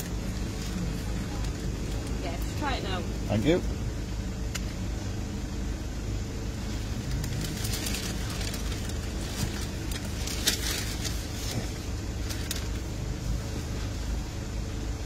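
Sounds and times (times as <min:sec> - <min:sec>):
car engine idling: 0:00.0 - 0:15.0
rustling: 0:06.5 - 0:14.0.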